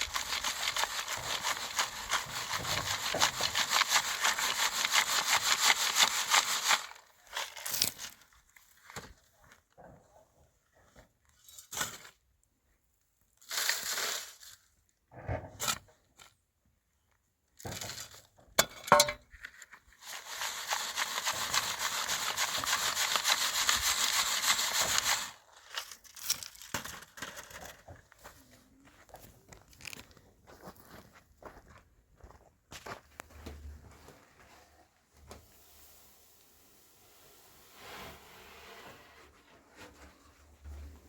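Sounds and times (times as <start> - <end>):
dry soil scraped by hand: 0.0 - 9.2, 13.4 - 14.7, 19.9 - 27.9, 33.4 - 41.0.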